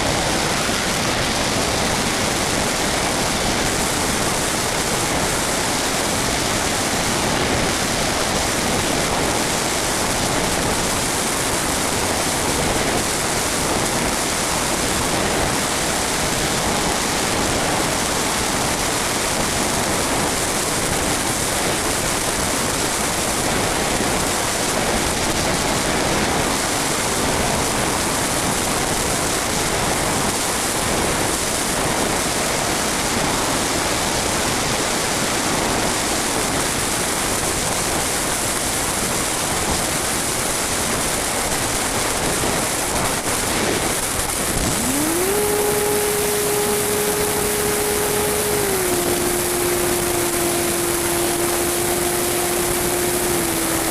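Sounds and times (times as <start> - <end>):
wind rushing over microphone: 42.4 - 53.9.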